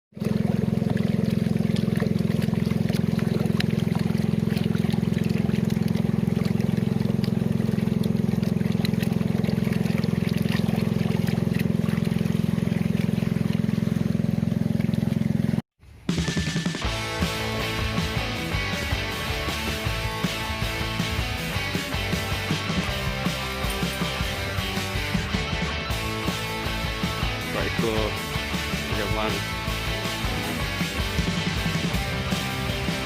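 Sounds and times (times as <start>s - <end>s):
small boat motor running: 0.1s - 15.6s, 16.8s - 33.0s
water noise: 0.1s - 33.0s
music: 16.1s - 33.0s.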